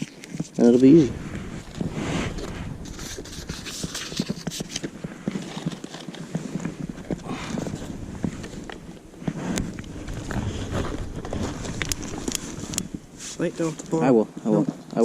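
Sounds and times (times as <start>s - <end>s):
dry sticks cracking: 2.8s - 14.0s.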